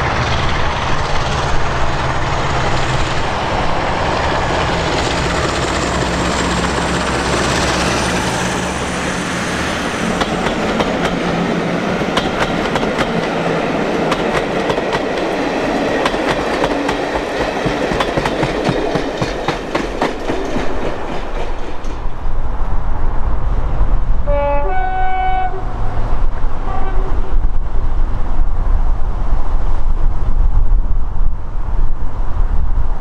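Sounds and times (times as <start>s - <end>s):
wheels clacking over rail joints: 0.0s - 22.3s
two-tone locomotive horn: 24.2s - 26.0s, 26.6s - 27.4s
short horn toot: 24.3s - 25.8s.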